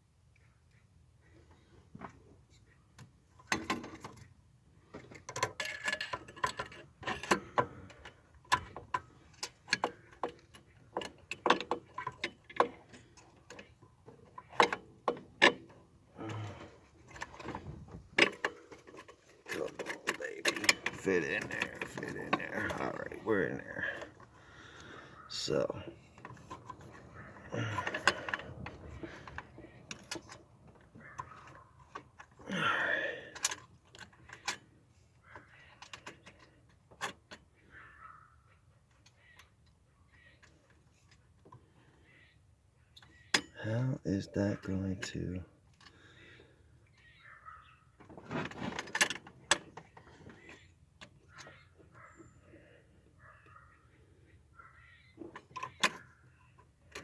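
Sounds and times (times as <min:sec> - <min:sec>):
metal tool clicks and knocks: 0:05.1 - 0:13.7, 0:18.2 - 0:22.9.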